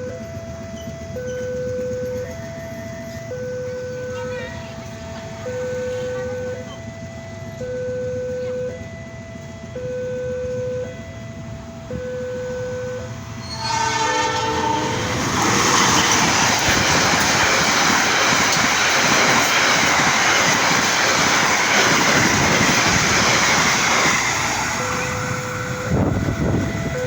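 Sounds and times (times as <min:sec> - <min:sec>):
train passing: 0:00.0 - 0:27.0
two-tone electronic warning signal: 0:00.0 - 0:27.0
train horn: 0:12.1 - 0:16.9.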